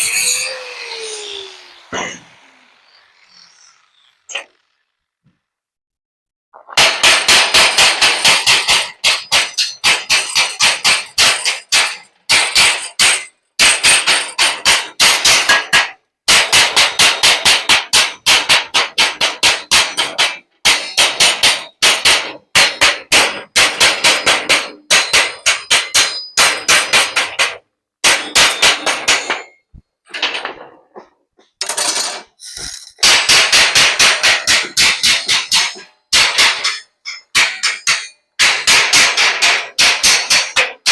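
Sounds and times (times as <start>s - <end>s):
rapid hammering on metal: 6.8s - 29.6s, 33.0s - 40.9s.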